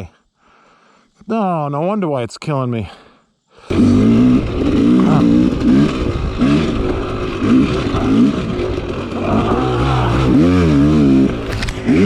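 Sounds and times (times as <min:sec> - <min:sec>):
dirt bike engine revving: 0:03.7 - 0:12.0.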